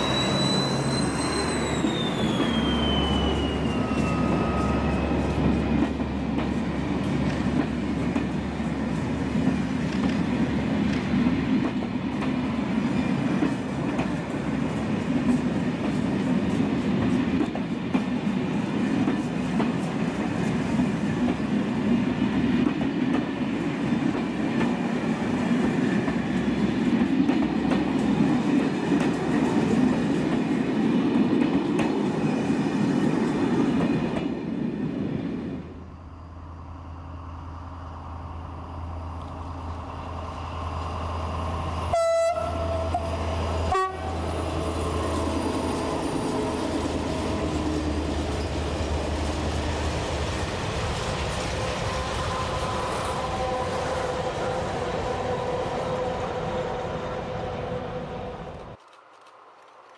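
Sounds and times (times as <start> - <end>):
freight train rolling past: 0.0 - 59.9
passenger coaches rolling past: 0.0 - 59.9
diesel locomotive engine humming: 23.5 - 58.8
train horn blasts: 41.9 - 44.3, 52.4 - 58.5.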